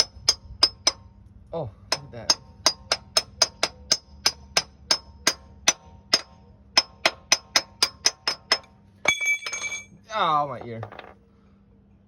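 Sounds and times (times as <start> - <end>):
hammer striking metal: 1.9 - 9.9.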